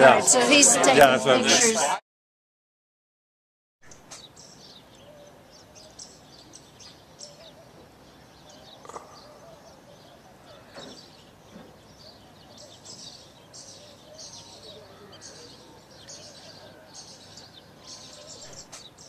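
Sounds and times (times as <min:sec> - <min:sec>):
birds chirping: 0:03.8 - 0:19.0
downward-sweeping bird calls: 0:03.9 - 0:19.0.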